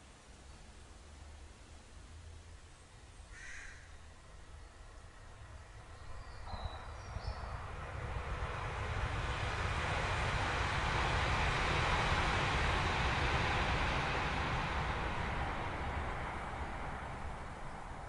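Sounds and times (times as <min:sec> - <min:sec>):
train rumble: 0:04.0 - 0:18.0.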